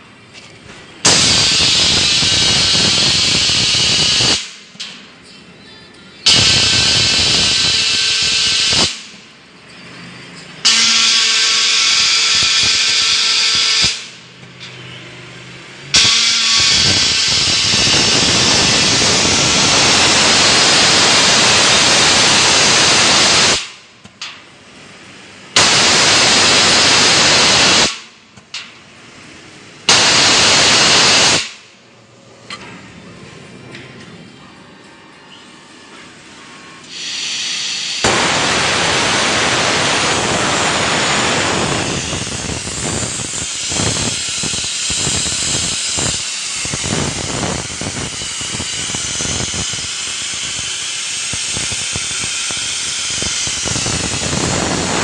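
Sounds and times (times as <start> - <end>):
quiet machine noise: 0.0 - 55.0
plasma torch arc hissing: 1.0 - 4.6, 6.3 - 9.2, 10.6 - 14.2, 15.9 - 23.8, 25.5 - 28.1, 29.8 - 31.7, 36.9 - 55.0.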